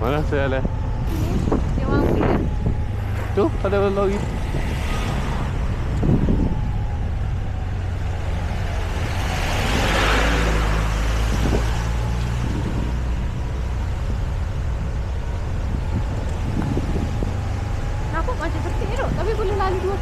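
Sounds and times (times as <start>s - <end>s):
wind on microphone: 0.0s - 20.0s.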